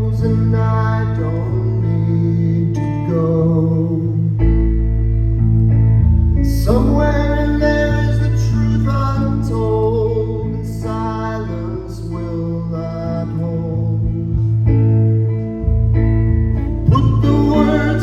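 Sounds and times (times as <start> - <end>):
deep bass note: 0.0 - 10.6, 12.7 - 18.0.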